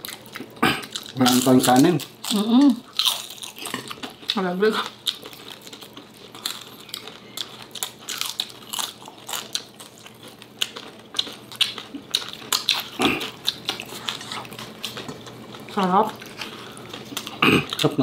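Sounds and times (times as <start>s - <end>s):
people chewing and lip-smacking: 0.0s - 18.0s.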